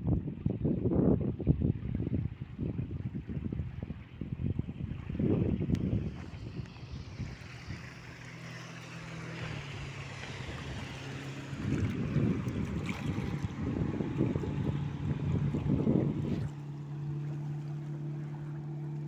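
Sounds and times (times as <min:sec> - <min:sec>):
low gusty rumbling: 0:00.0 - 0:08.2, 0:09.1 - 0:16.5
water rushing from wake: 0:00.0 - 0:19.0
ship engine hum: 0:02.3 - 0:19.0.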